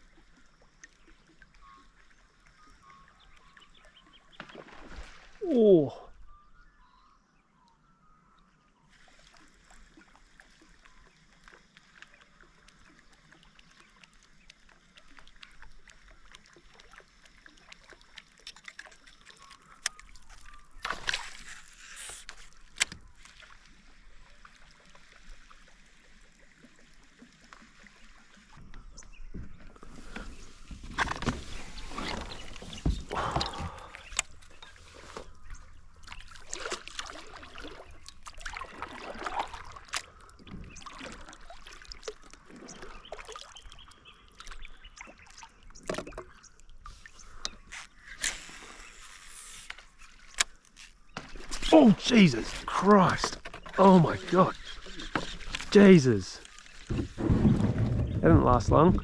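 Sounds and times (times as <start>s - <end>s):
water lapping against kayak hull: 0.0s - 6.5s, 8.2s - 59.0s.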